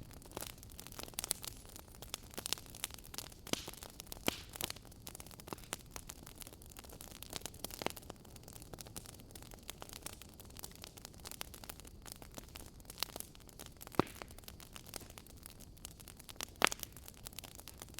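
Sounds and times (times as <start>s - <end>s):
wood fire crackling: 0.0s - 17.9s.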